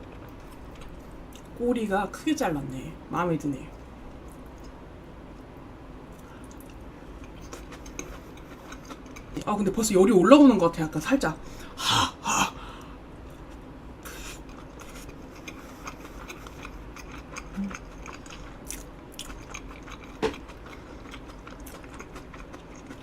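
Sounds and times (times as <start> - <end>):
close-up chewing and mouth sounds: 6.1 - 9.5, 12.8 - 23.0.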